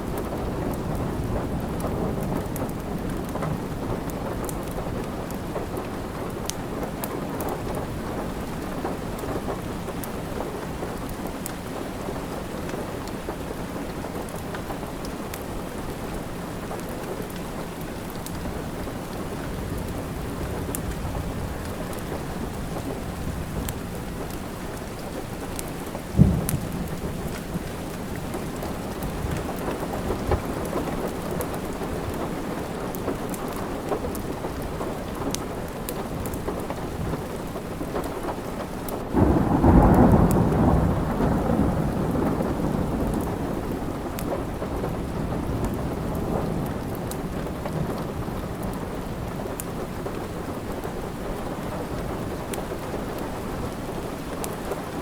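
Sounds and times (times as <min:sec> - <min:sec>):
steady rain: 0:00.0 - 0:55.0
wood fire crackling: 0:02.4 - 0:40.4, 0:42.8 - 0:55.0
rumble of thunder: 0:18.4 - 0:32.7, 0:39.1 - 0:49.4.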